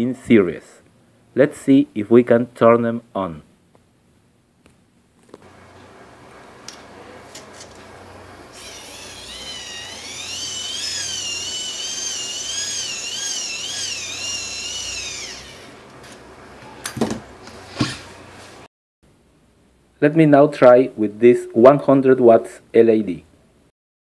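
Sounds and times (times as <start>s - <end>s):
gears whirring: 8.5s - 15.7s.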